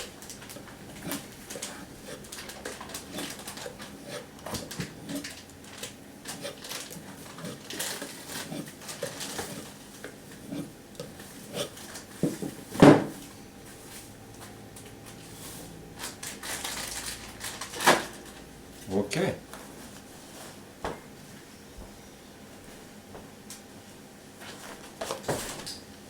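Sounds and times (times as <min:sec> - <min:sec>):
knife scraping on a strop: 0:10.4 - 0:11.8.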